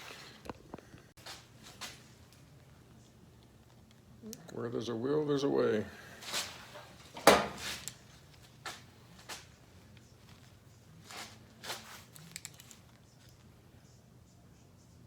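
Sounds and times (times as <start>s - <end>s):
objects clunking on a workbench: 6.3s - 7.9s.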